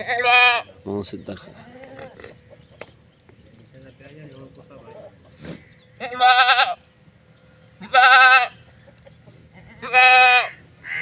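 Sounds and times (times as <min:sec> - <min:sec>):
goat bleating: 0:00.0 - 0:00.8, 0:06.0 - 0:06.8, 0:07.8 - 0:08.6, 0:09.6 - 0:11.0.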